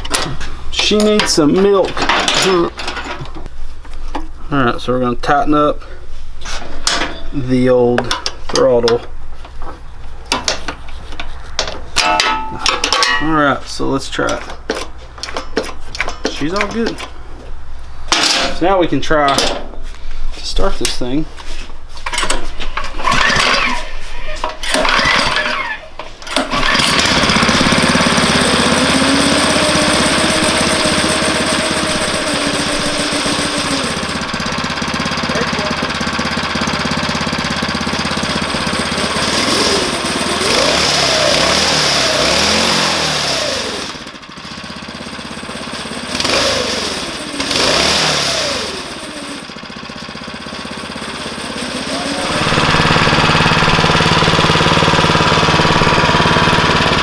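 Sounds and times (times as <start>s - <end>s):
go-kart engine revving: 23.0s - 57.0s.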